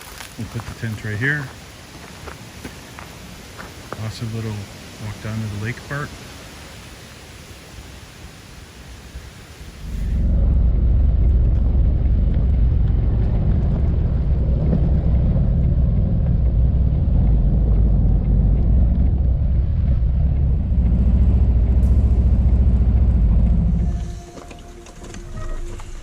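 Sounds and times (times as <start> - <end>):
motorcycle engine rumbling: 9.6 - 26.0.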